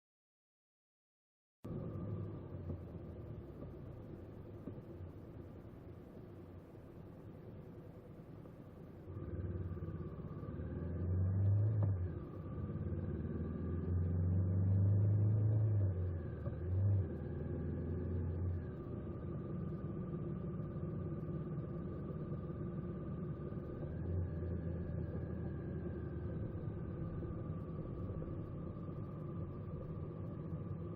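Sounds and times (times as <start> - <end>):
vehicle engine revving: 9.1 - 30.9.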